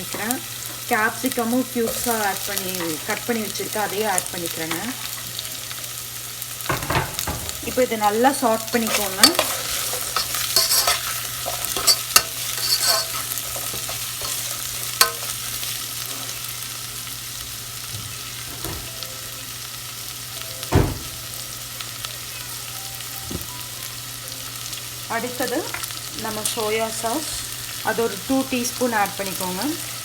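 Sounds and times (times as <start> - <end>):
vegetables sizzling in oil: 0.0 - 30.0
utensil scraping a pan: 8.7 - 16.4.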